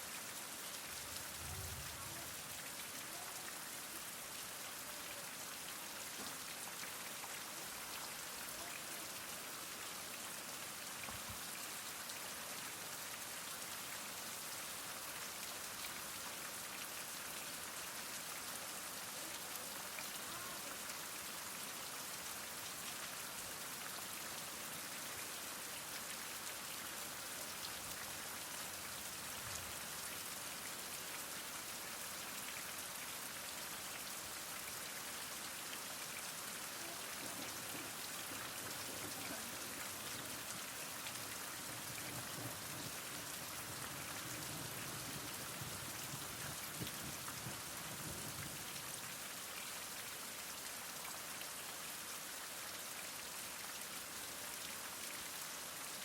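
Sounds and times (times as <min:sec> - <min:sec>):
heavy rain falling: 0:00.0 - 0:12.0, 0:14.8 - 0:31.2, 0:34.1 - 0:49.4.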